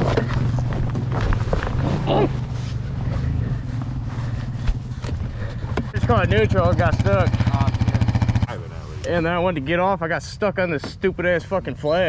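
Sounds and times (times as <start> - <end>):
dirt bike engine running: 0.0 - 9.4.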